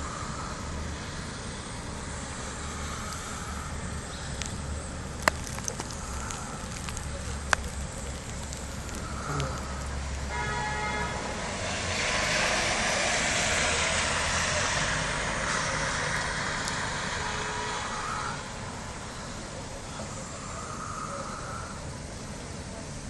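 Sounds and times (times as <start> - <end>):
vehicle passing: 0.0 - 21.9
car horn toot: 10.3 - 11.4, 17.2 - 18.0.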